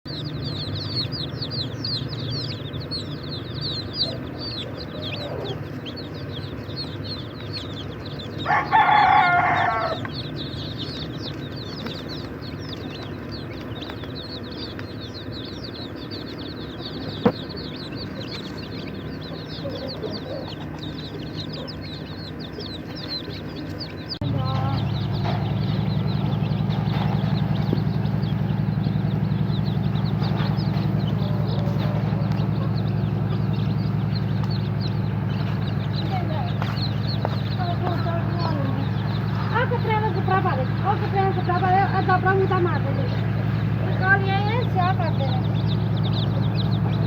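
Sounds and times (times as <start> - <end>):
chicks peeping: 0.0 - 47.0
low hum: 0.1 - 47.0
chicken call: 3.4 - 7.3, 8.3 - 10.6.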